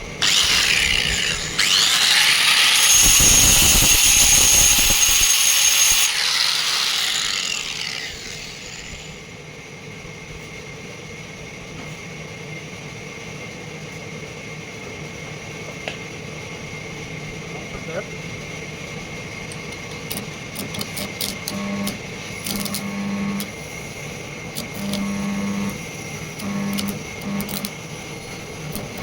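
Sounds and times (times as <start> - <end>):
steady machine hum: 0.0 - 11.7, 14.6 - 29.0
sawmill saw cutting: 0.2 - 9.4, 20.1 - 29.0.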